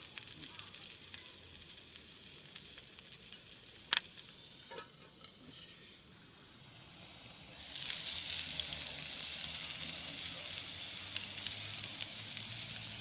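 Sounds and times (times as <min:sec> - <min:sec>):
meat patty sizzling in a pan: 0:00.0 - 0:13.0.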